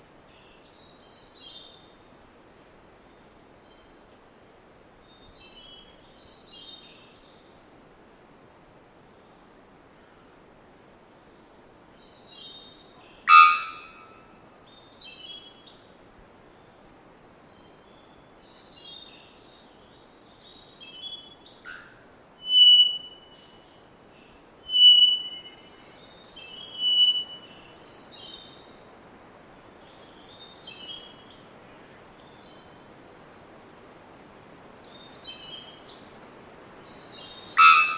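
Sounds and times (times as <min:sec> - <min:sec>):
whistled bird notes: 0:24.7 - 0:25.6, 0:26.4 - 0:27.6
bellbird calls: 0:37.6 - 0:37.9.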